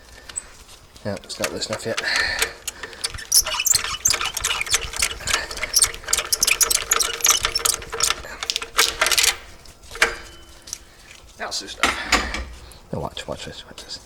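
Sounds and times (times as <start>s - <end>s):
ratchet wrench clicking: 1.2s - 9.4s.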